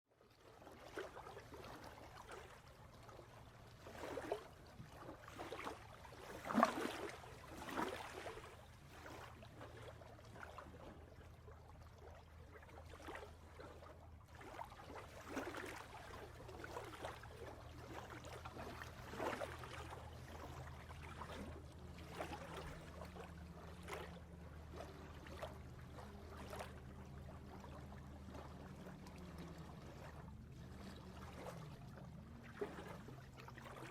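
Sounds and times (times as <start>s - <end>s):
water splashing and trickling: 0.2s - 33.9s
low steady hum: 0.6s - 33.9s.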